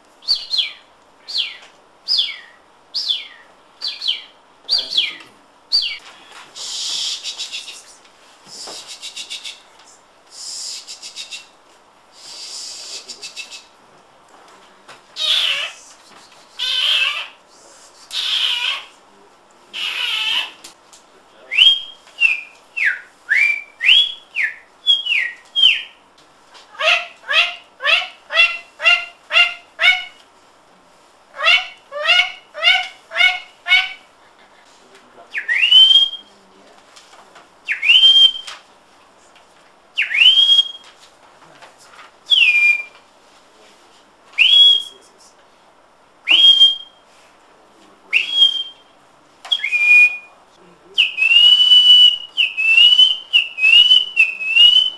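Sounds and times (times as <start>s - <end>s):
person whistling bird calls: 1.3s - 5.2s, 6.6s - 9.7s, 10.4s - 11.5s, 12.2s - 13.7s, 21.5s - 25.9s, 35.4s - 36.3s, 37.7s - 38.6s, 40.0s - 40.9s, 42.3s - 43.0s, 44.4s - 45.0s, 46.3s - 47.0s, 48.2s - 48.8s, 49.5s - 50.4s, 51.0s - 54.9s.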